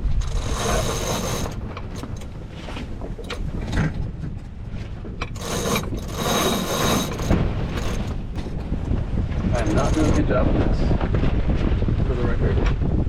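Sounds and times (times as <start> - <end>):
low rumble of wind and water: 0.0 - 13.0
winch ratcheting: 0.1 - 3.8, 5.2 - 8.4.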